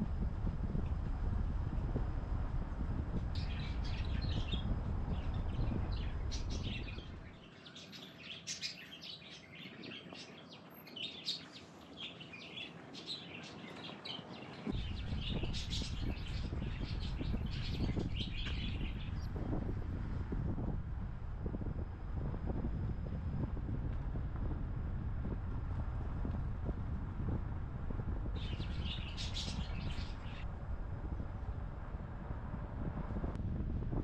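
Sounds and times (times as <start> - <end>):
low rumbling noise: 0.0 - 7.5, 14.6 - 34.0
small birds chirping: 3.3 - 19.4, 28.3 - 30.5.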